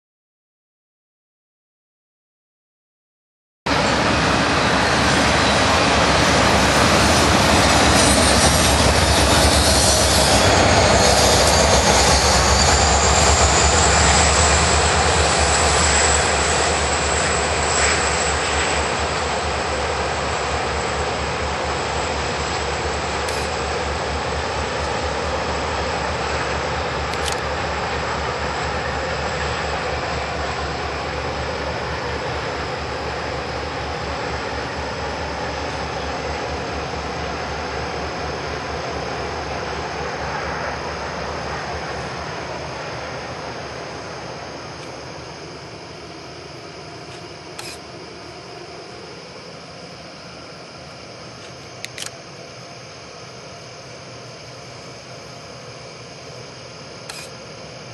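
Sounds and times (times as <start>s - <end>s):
diesel locomotives droning: 3.7s - 57.9s
thin high whine: 3.7s - 57.9s.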